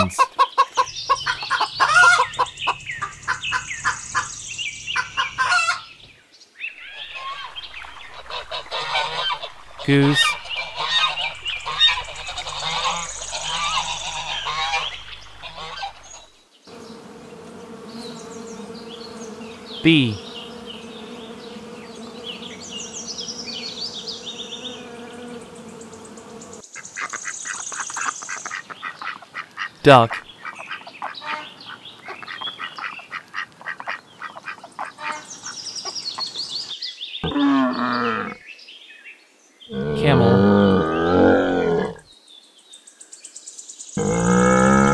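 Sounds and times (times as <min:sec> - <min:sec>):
geese honking: 0:00.0 - 0:02.5, 0:07.0 - 0:16.2
ducks quacking: 0:00.0 - 0:02.8, 0:07.0 - 0:16.2, 0:27.0 - 0:35.3
bees buzzing: 0:06.9 - 0:26.6.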